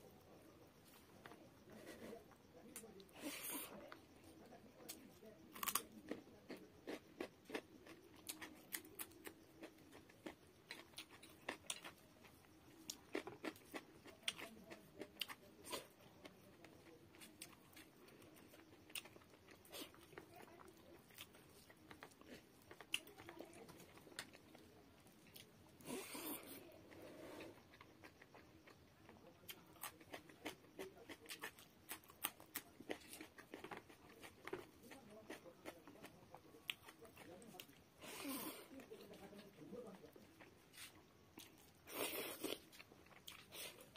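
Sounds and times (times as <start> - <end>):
crunching on raw carrot: 4.9 - 12.0, 29.5 - 38.8, 40.4 - 43.9
person chewing food: 4.9 - 43.9.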